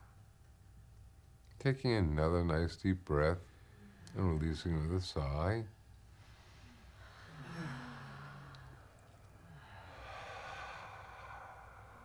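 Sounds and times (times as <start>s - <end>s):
long breathy deep breath: 6.2s - 12.0s
person sighing: 7.3s - 8.8s.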